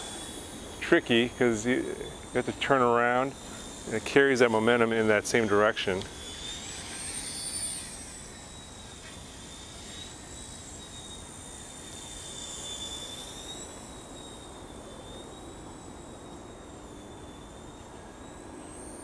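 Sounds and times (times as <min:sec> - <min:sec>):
toy helicopter motor whine: 0:00.0 - 0:19.0.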